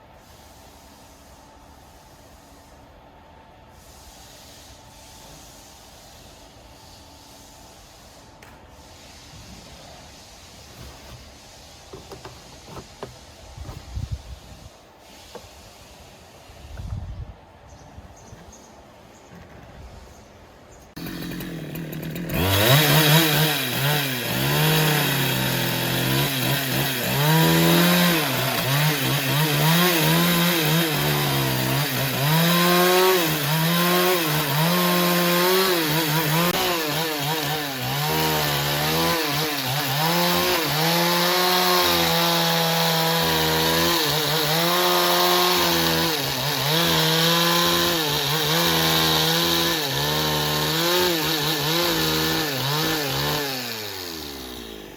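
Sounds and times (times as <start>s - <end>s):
chainsaw cutting wood: 21.0s - 54.9s.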